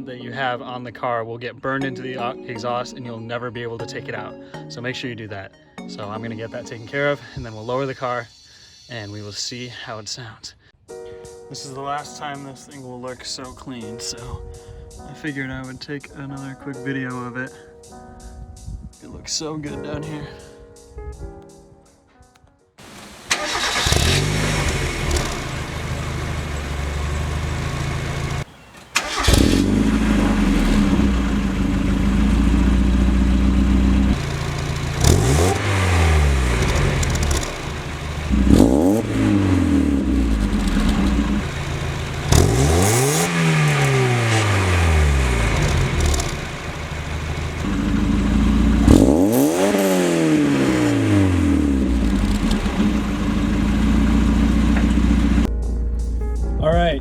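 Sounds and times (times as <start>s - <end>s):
car engine idling and revving: 22.8s - 55.5s.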